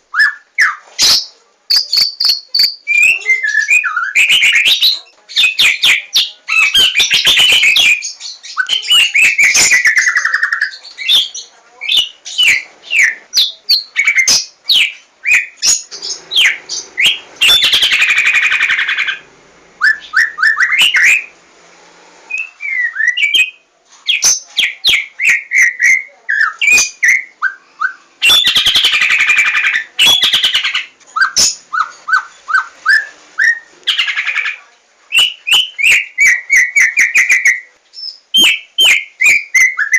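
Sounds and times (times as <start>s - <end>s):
bird singing whistled song: 0.1s - 19.2s, 19.8s - 21.4s, 22.3s - 34.1s, 35.1s - 39.9s
harsh bird chattering: 2.0s - 19.3s, 28.2s - 34.6s.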